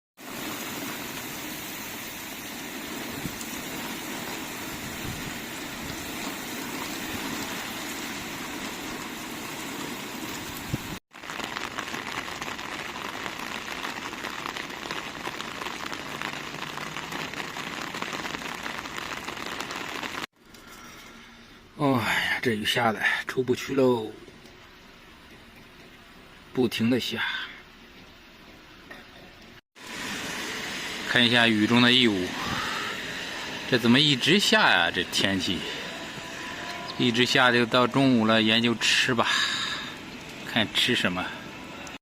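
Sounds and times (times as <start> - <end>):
heavy rain falling: 0.2 - 20.3, 29.8 - 42.0.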